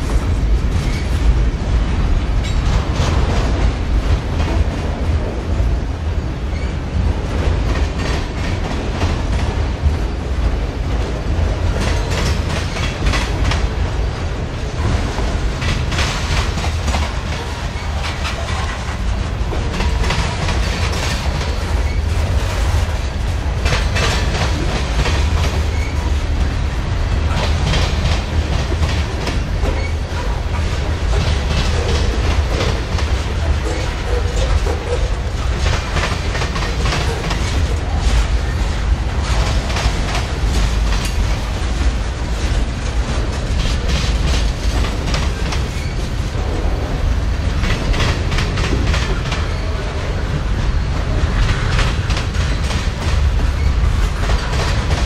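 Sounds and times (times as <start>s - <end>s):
freight train rumbling past: 0.0s - 55.0s
wheels clicking over rail joints: 6.4s - 13.9s, 14.6s - 46.8s.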